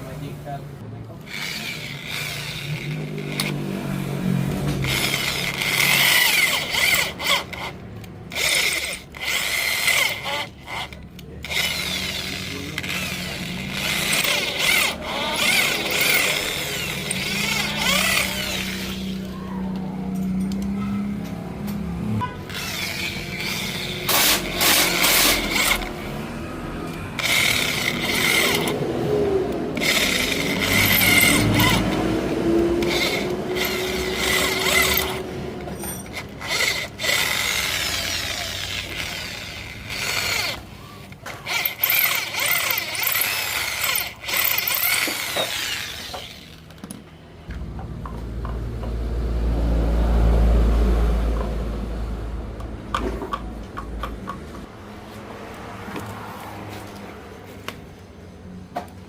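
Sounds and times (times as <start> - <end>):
power tool running in bursts: 1.3 - 7.7, 22.5 - 26.2, 27.1 - 35.4, 36.0 - 40.6, 41.4 - 46.6.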